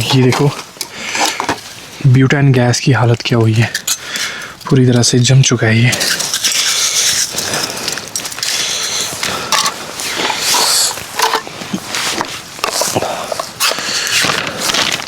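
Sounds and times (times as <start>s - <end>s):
gear rustling and scraping: 0.0s - 2.3s, 3.4s - 15.0s.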